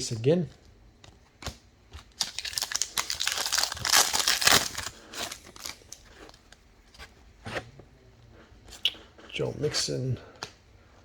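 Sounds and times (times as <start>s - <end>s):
foil wrapper crinkling and tearing: 2.1s - 6.0s.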